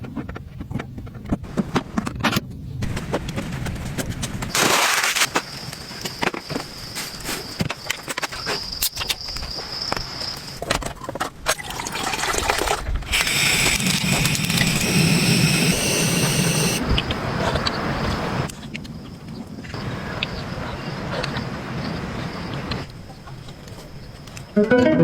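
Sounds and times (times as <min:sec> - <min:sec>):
raindrops pattering: 0:11.6 - 0:17.2.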